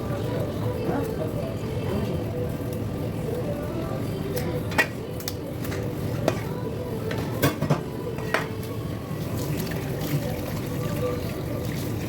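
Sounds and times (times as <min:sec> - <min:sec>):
wet watery background: 0:09.1 - 0:12.0.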